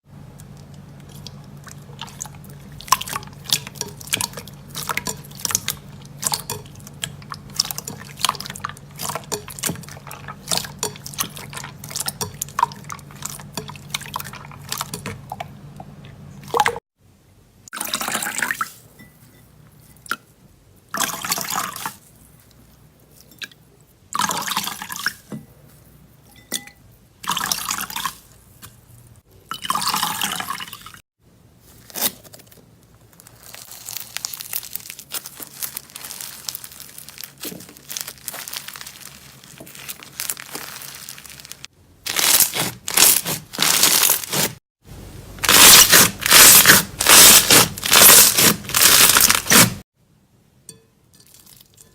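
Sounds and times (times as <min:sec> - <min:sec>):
hands squishing slime: 0:31.6 - 0:44.6.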